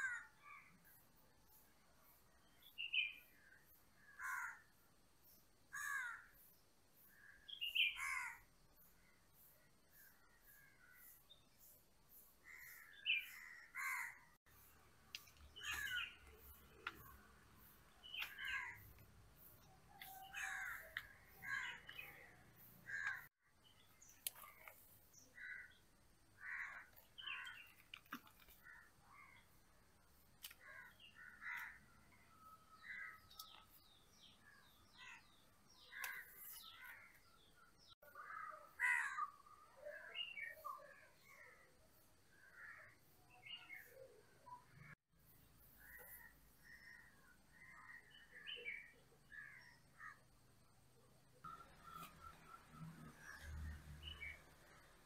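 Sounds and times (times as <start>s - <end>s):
crows cawing: 0.0s - 0.6s, 4.1s - 4.6s, 5.7s - 6.3s, 8.0s - 8.4s, 12.5s - 14.3s, 15.6s - 16.2s, 18.3s - 18.8s, 20.0s - 23.3s, 26.4s - 27.5s, 30.6s - 31.9s, 38.2s - 39.4s
faint birds: 0.0s - 55.0s.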